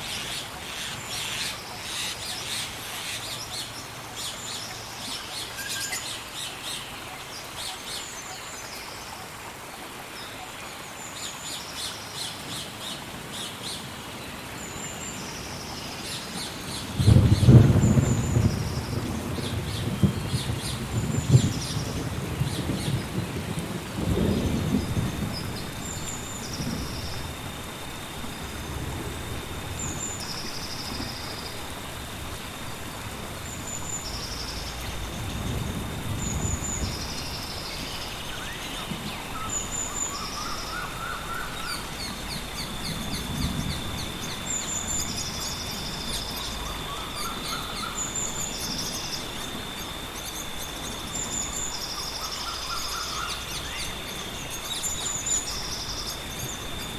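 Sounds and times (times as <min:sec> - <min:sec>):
steady rain: 0:00.0 - 0:56.9
thunder rolling: 0:16.9 - 0:51.9
birds calling: 0:24.0 - 0:56.9.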